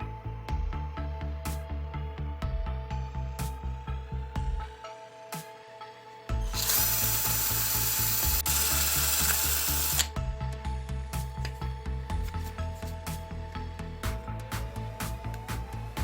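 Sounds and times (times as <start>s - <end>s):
background music with steady beat: 0.0s - 16.0s
power tool running: 6.5s - 10.1s.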